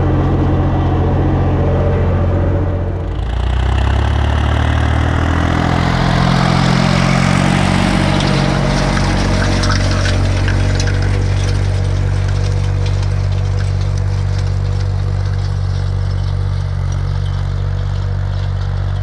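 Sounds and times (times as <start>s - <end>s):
tractor diesel engine running: 0.0s - 19.0s
light clattering ticks: 8.0s - 19.0s.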